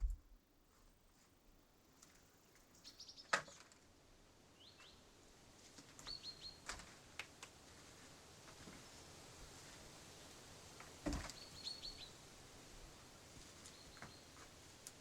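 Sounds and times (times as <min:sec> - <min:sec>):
small birds chirping: 0:02.3 - 0:03.6, 0:04.6 - 0:05.0, 0:06.0 - 0:06.8, 0:11.2 - 0:12.2, 0:13.5 - 0:14.6.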